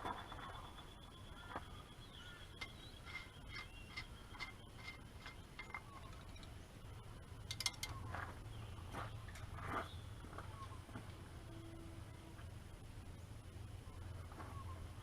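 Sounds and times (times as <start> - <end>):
light metallic clinks: 2.6 - 6.6, 7.4 - 8.0.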